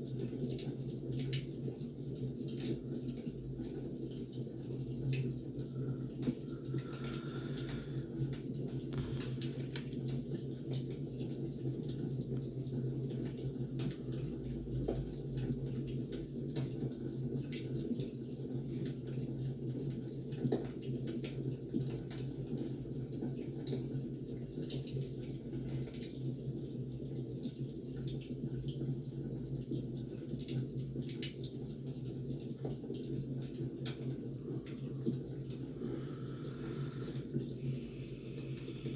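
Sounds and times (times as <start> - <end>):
firewood crackling and popping: 8.8 - 10.6.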